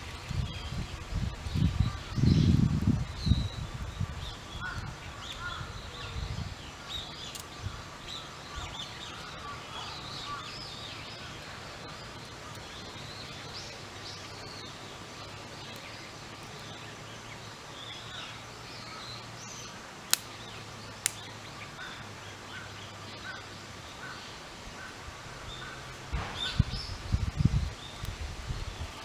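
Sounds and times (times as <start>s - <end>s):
small birds chirping: 0.0s - 29.0s
sharp clicks: 20.1s - 20.4s, 21.0s - 21.3s.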